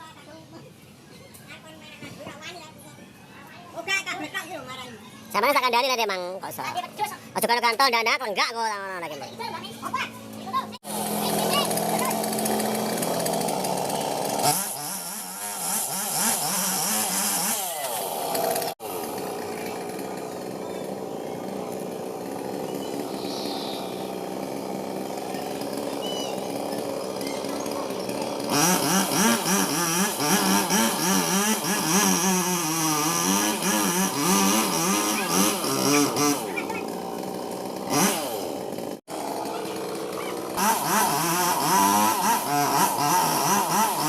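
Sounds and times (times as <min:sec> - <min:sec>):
chainsaw engine running: 0:08.8 - 0:44.0.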